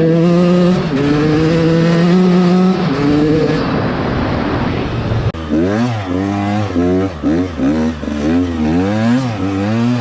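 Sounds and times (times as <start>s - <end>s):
dirt bike engine revving high: 0.0s - 4.1s, 5.4s - 10.0s
loud rushing noise: 1.0s - 8.5s.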